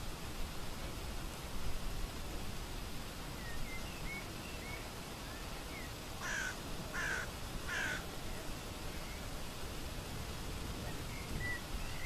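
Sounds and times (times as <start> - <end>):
steady outdoor hiss: 0.0 - 12.0
small birds chirping: 3.3 - 9.4, 10.8 - 12.0
bird harsh calls: 6.2 - 8.0.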